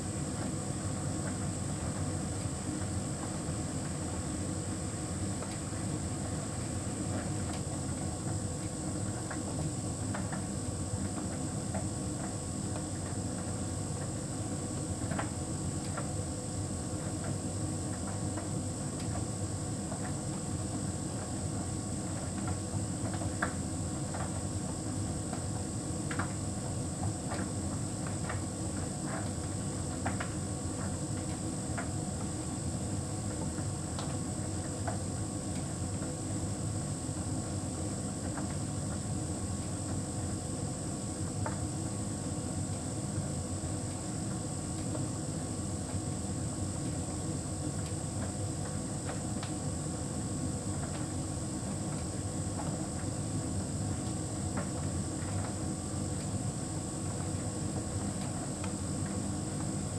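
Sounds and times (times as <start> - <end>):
tumble dryer humming with high whine: 0.0 - 59.9.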